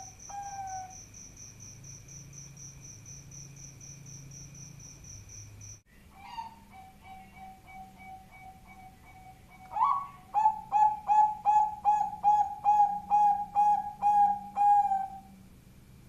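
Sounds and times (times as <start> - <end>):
dove cooing: 0.0 - 1.0, 6.2 - 15.4.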